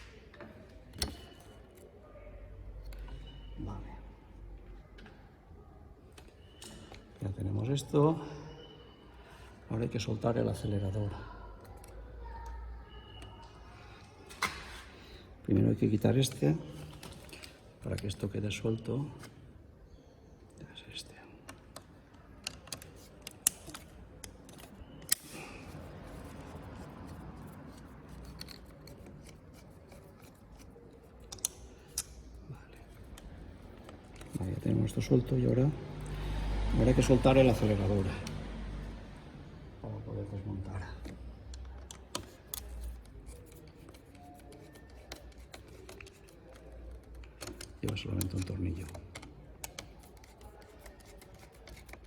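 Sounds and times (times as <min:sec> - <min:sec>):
metal and plastic clicks: 0:21.5 - 0:34.6, 0:41.0 - 0:52.0
plastic and metal parts rubbing: 0:22.4 - 0:35.0, 0:41.1 - 0:52.0.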